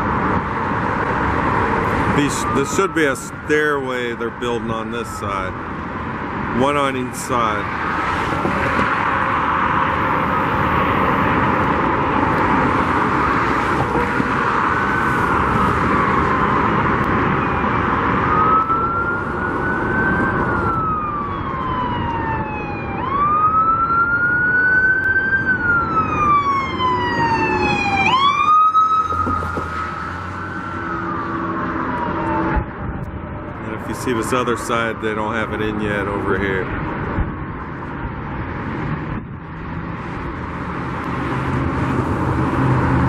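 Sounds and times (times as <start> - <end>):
road traffic: 0.0 - 43.0
emergency siren wailing: 1.2 - 5.9, 6.6 - 34.7.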